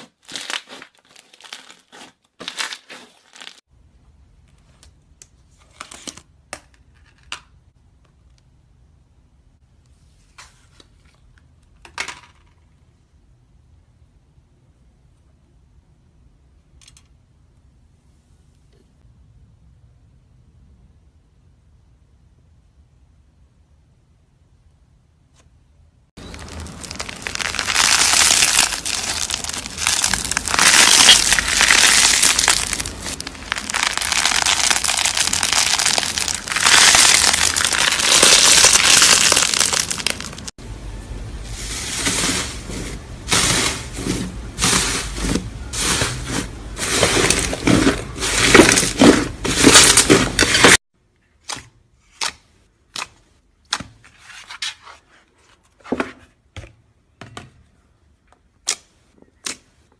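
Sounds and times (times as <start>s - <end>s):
slime squished by hand: 26.2s - 40.5s.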